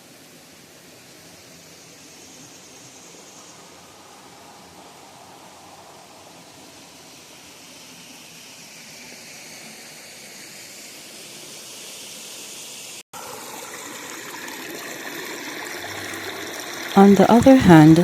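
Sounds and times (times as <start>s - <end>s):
river water rushing: 15.7s - 18.0s.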